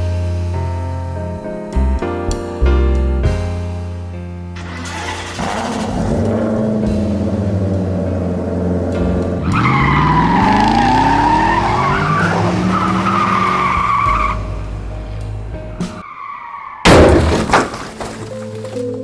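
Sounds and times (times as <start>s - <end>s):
tires squealing: 4.6s - 14.8s, 15.8s - 16.9s
car engine revving: 4.6s - 16.0s.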